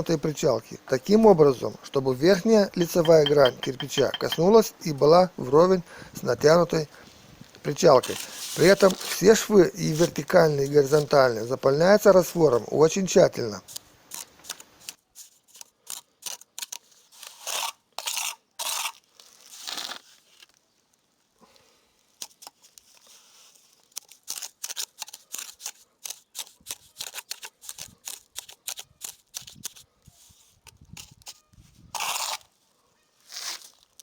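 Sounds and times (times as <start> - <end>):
trowel scraping and tapping brick: 2.8 - 4.5.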